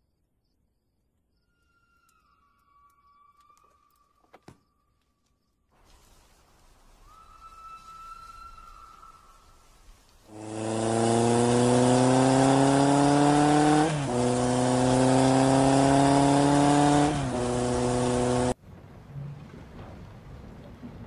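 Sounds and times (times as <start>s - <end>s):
car engine accelerating hard: 10.3s - 18.6s.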